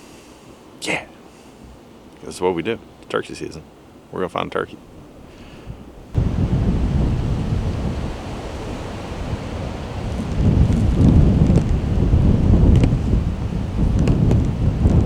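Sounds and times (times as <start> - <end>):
wind buffeting microphone: 3.8 - 15.0.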